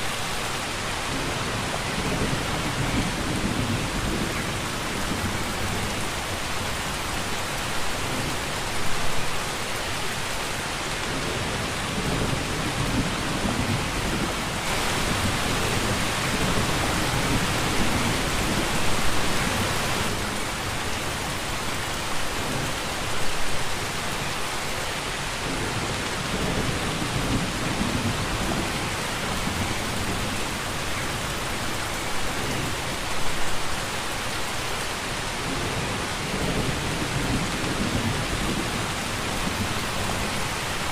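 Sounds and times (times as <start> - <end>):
heavy rain: 0.0 - 40.9
low rumbling thunder: 11.2 - 20.4.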